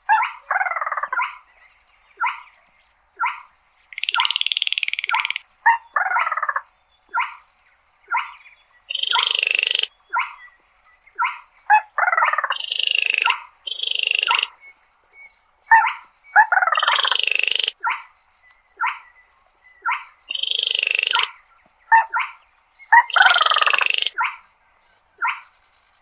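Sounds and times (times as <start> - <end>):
bird rattling calls: 3.9 - 5.4, 8.9 - 9.9, 12.4 - 14.5, 16.6 - 17.8, 20.3 - 21.3, 23.0 - 24.2.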